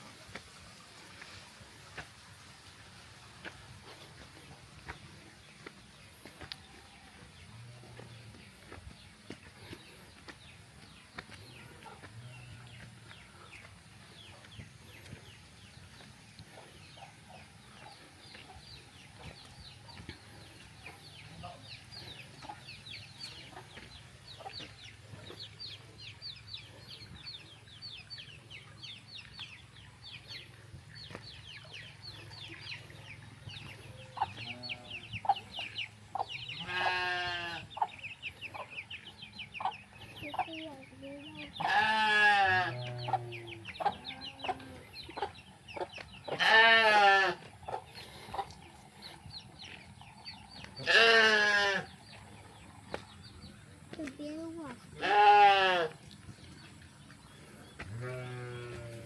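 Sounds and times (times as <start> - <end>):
chicks peeping: 4.0 - 36.7, 37.6 - 41.7, 42.7 - 46.4, 47.4 - 50.8, 56.0 - 57.9.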